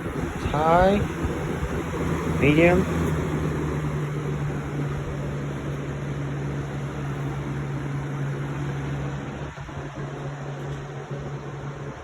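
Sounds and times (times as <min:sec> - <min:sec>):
box fan running: 0:00.0 - 0:12.0.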